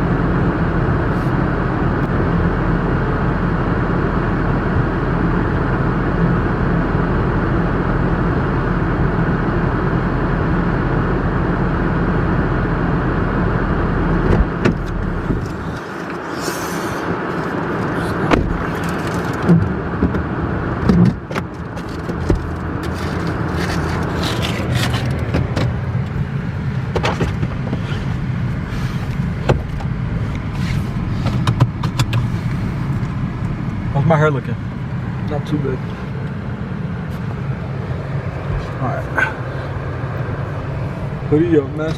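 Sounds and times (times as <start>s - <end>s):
road and engine noise in car: 0.0s - 41.9s
knocks and clicks: 31.2s - 32.3s.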